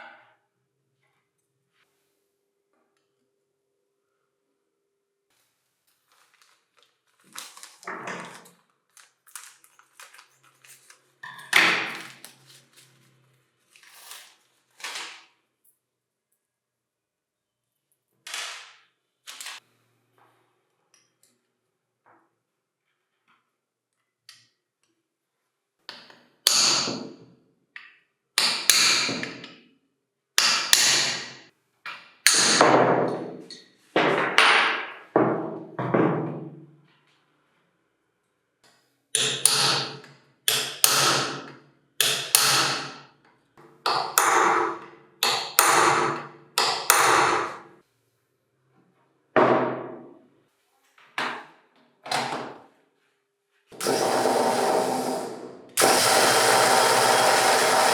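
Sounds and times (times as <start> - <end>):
hammer striking: 39.2 - 43.0, 43.9 - 47.6.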